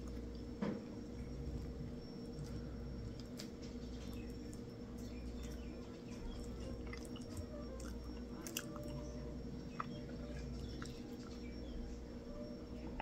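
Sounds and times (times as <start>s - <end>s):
chewing with wet mouth clicks: 0.0s - 11.8s.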